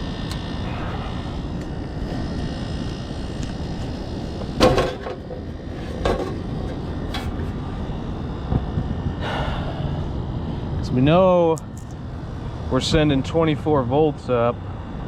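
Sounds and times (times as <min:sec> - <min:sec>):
sheet metal clanking: 0:04.6 - 0:07.5.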